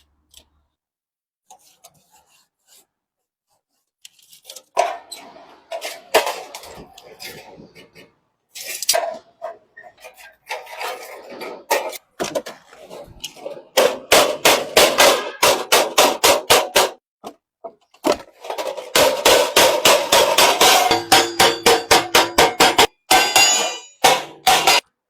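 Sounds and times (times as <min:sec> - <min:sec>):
hammer striking hot metal on anvil: 0:19.6 - 0:24.8.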